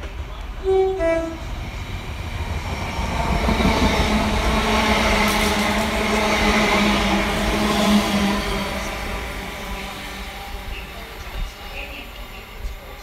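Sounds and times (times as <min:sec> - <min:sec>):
train rushing past: 0:00.0 - 0:13.0.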